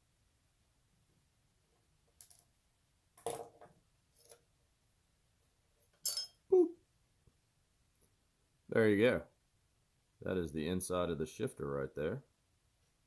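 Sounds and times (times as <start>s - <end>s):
clatter of small parts: 2.2s - 2.6s, 3.2s - 4.4s.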